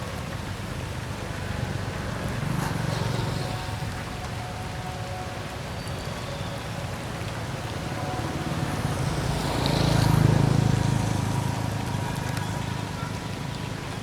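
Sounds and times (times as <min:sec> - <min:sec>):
motor vehicle passing by: 0:00.4 - 0:04.4, 0:07.4 - 0:14.0.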